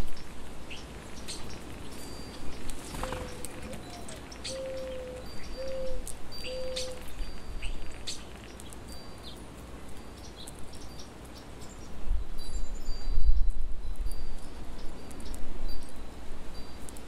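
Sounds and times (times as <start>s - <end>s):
high whistled bird notes: 1.9s - 8.2s
low bird call: 2.9s - 7.8s.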